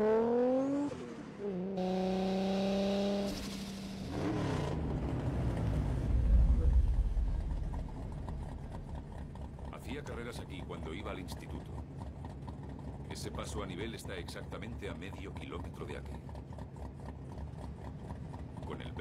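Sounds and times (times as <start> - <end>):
car engine revving: 0.0 - 13.8
deep muscle car engine rumble: 3.4 - 19.0.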